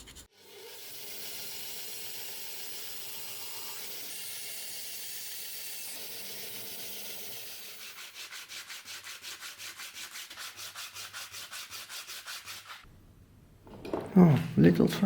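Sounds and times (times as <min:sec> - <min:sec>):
hand sanding strokes: 0:07.2 - 0:12.9.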